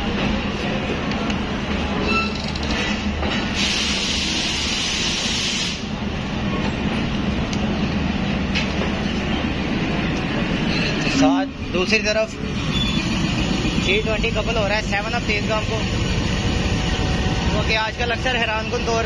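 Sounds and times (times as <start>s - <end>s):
passenger train rumbling: 0.0s - 19.0s
hiss: 3.6s - 5.9s.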